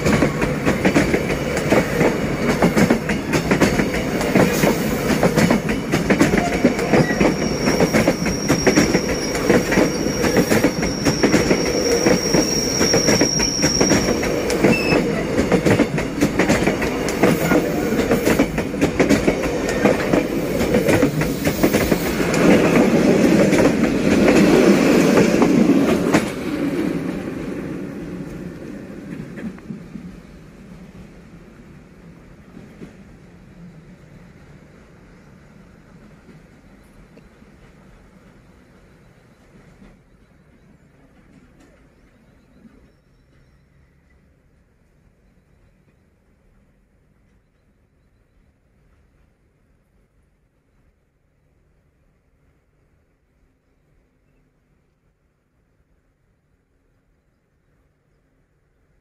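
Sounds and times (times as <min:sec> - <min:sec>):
train wheels clattering: 0:00.0 - 0:26.8
high wheel squeal: 0:06.4 - 0:15.4.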